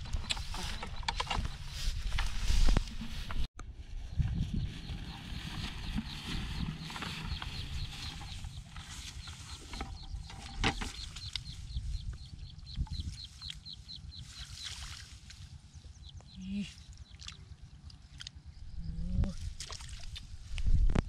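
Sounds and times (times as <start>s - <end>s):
bird chirping: 4.1s - 14.8s.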